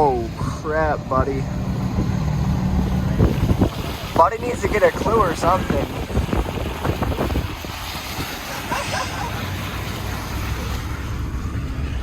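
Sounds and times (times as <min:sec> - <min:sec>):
car engine and tyres rumbling: 0:00.0 - 0:12.0
wind noise on microphone: 0:01.6 - 0:08.7.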